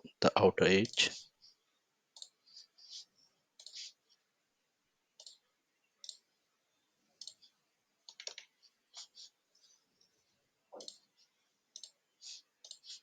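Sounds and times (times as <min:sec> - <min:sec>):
computer mouse clicks: 0:02.1 - 0:02.4, 0:03.6 - 0:03.8, 0:05.2 - 0:05.4, 0:06.0 - 0:06.3, 0:07.2 - 0:09.1, 0:10.7 - 0:11.1, 0:11.7 - 0:12.0, 0:12.6 - 0:13.0.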